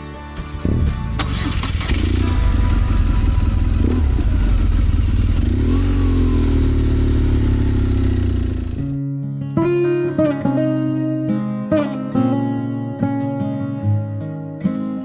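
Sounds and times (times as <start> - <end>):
strummed acoustic guitar music: 0.0 - 7.3, 7.9 - 15.0
motorcycle engine revving: 1.2 - 9.0.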